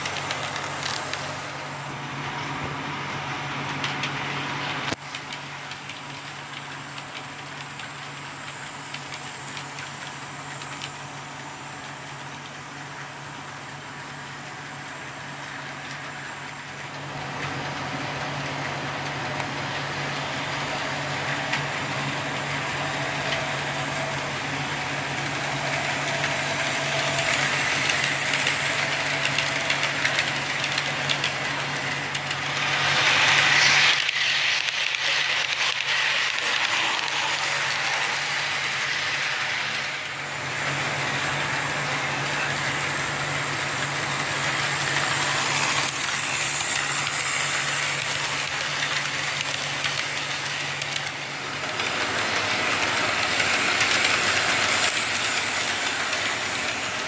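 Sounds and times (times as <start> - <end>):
train rattle and rumble: 0.0 - 57.0
hissing: 20.4 - 57.0.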